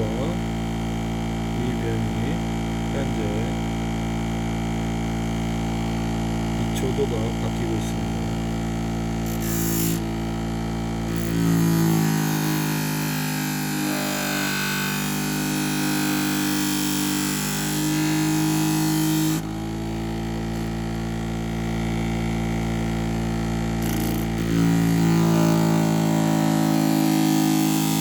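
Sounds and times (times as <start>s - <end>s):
sharpening machine motor humming: 0.0s - 28.0s
knife blade grinding on wheel: 9.2s - 10.1s, 11.0s - 16.5s, 23.8s - 28.0s.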